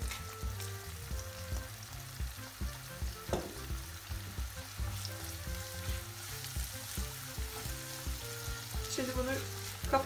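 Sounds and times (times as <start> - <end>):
vegetables sizzling in a frying pan: 0.0 - 10.0
knock: 3.3 - 3.7.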